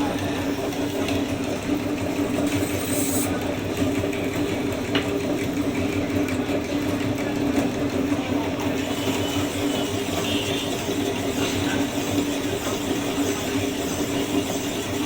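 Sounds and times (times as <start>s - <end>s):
electric motor humming: 2.4s - 3.4s.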